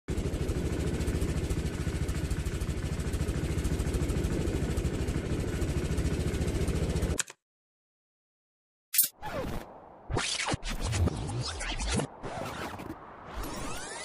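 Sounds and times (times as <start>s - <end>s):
engine idling: 0.1s - 7.2s.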